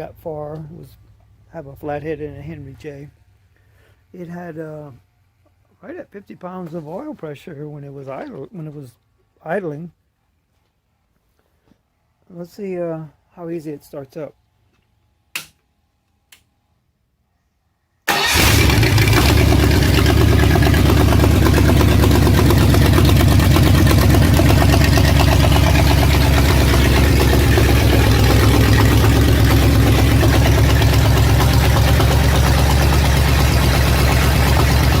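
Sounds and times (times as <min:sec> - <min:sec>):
loud engine running: 0:18.1 - 0:35.0.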